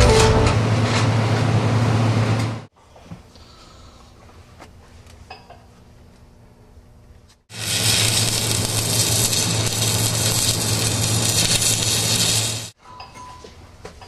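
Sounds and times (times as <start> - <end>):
welding arc crackling hiss: 7.5 - 12.8.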